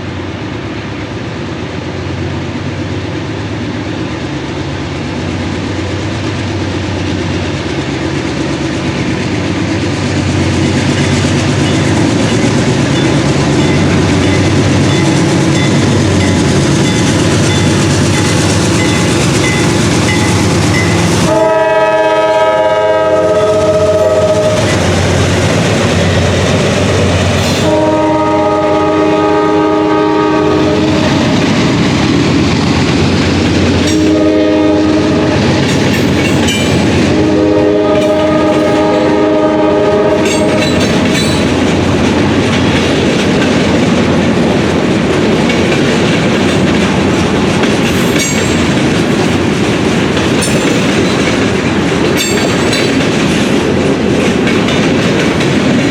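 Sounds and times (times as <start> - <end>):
train rumble: 0.0 - 55.9
train wheels clicking over rail joints: 3.2 - 34.4, 35.2 - 55.9
locomotive horn blasts: 21.2 - 24.7, 27.4 - 31.2, 33.9 - 35.7, 37.1 - 40.6.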